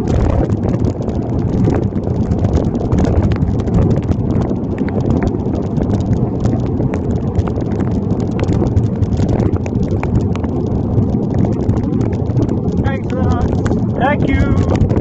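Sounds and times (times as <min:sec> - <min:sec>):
wind rumble on microphone: 0:00.0 - 0:15.0
raindrops ticking on plastic bag: 0:00.1 - 0:15.0.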